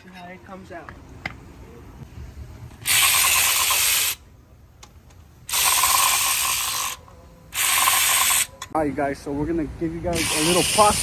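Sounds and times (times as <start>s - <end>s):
pneumatic wrench rattling: 2.8s - 4.2s, 5.5s - 8.7s, 10.1s - 11.0s.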